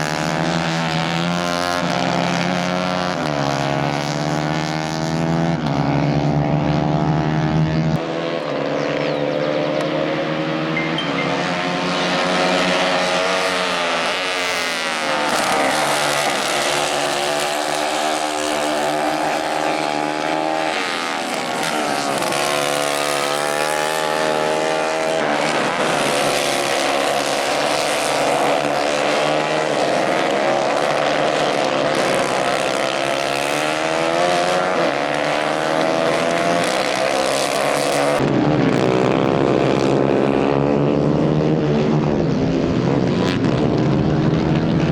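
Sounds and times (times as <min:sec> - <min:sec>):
racing kart engines revving: 0:00.0 - 0:44.9.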